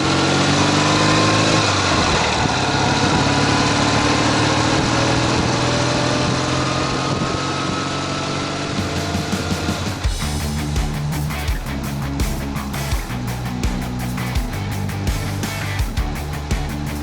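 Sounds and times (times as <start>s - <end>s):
motorcycle engine running: 8.0s - 17.0s
steady rushing noise: 8.6s - 17.0s.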